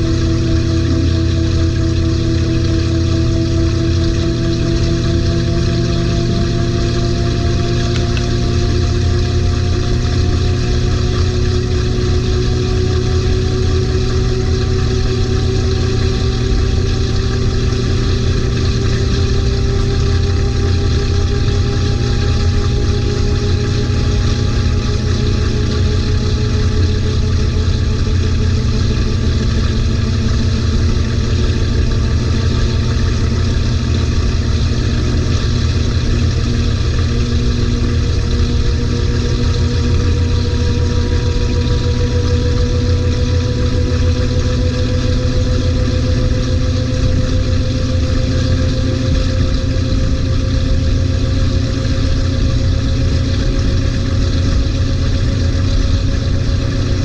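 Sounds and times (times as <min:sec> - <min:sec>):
motor whine rising in pitch: 0:00.0 - 0:57.0
washing machine hum: 0:00.0 - 0:57.0.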